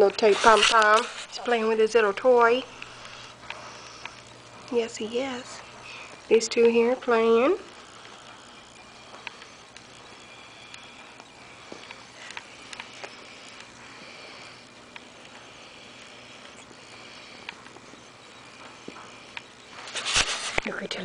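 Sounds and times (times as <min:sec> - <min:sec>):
small clicks: 0:06.0 - 0:20.8.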